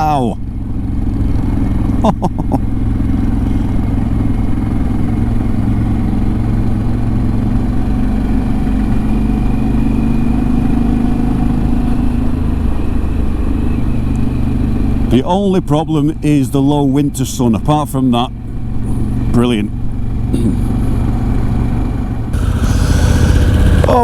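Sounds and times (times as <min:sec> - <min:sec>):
motorcycle engine running: 0:00.0 - 0:15.2, 0:18.4 - 0:24.0
wind rushing: 0:22.4 - 0:24.0.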